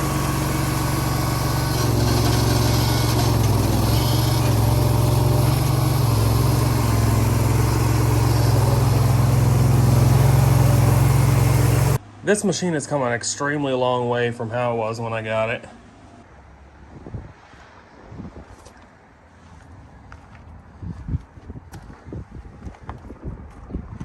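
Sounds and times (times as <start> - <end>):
skid steer diesel engine running: 0.0 - 12.0.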